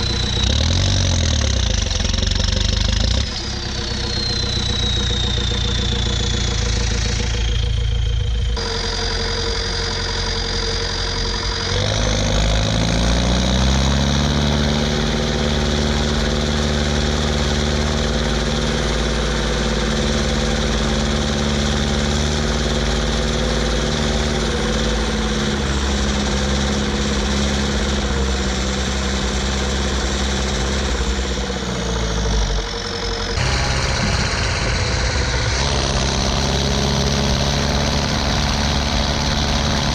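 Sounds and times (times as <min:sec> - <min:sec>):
high turbo whistle: 0:00.0 - 0:01.5, 0:03.1 - 0:11.8, 0:32.4 - 0:39.8
tractor diesel engine under load: 0:00.0 - 0:39.9.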